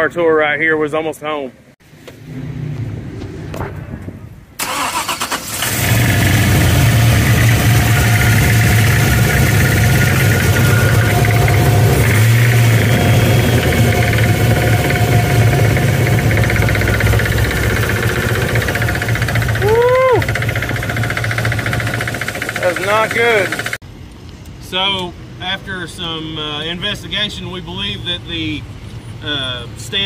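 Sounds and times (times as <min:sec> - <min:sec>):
car engine idling with knocking: 0:05.9 - 0:23.8.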